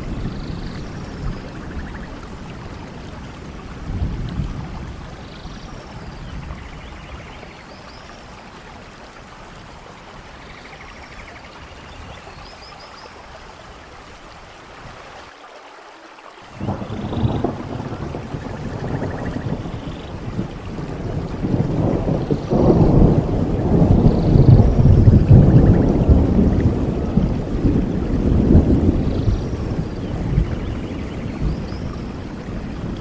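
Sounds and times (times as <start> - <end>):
low thunder rumbling: 0.0 - 7.5, 16.6 - 33.0
steady rain: 0.0 - 33.0.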